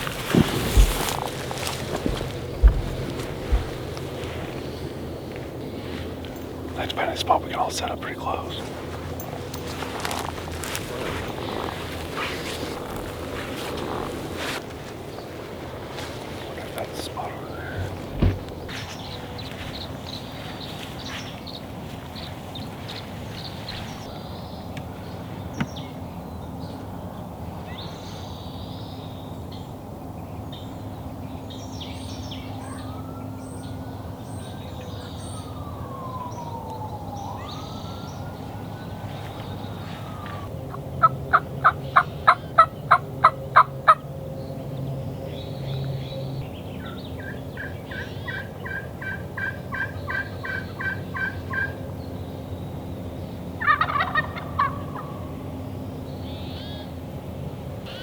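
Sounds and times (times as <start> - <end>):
small birds chirping: 0.0 - 29.7, 30.5 - 57.0
turkey yelping: 40.0 - 44.0, 47.2 - 51.8, 53.6 - 55.2.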